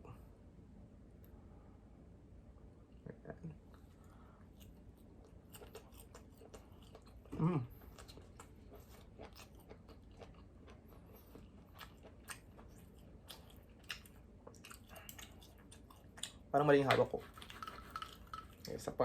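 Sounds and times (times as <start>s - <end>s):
person chewing: 3.7s - 18.8s
person humming: 7.3s - 7.7s.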